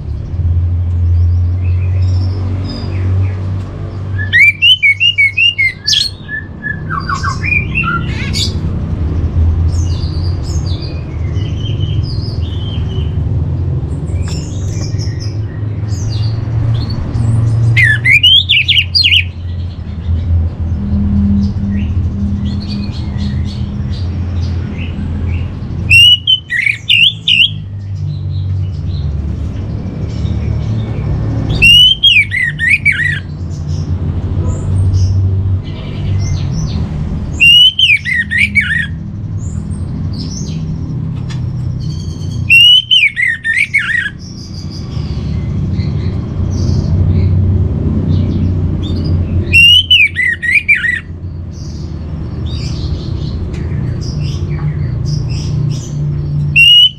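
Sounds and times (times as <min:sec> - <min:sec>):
thrush singing whistled notes: 0:04.1 - 0:08.6, 0:17.6 - 0:19.6, 0:24.8 - 0:28.0, 0:31.5 - 0:33.4, 0:37.3 - 0:39.0, 0:41.8 - 0:46.8, 0:48.9 - 0:52.9, 0:54.0 - 0:56.9.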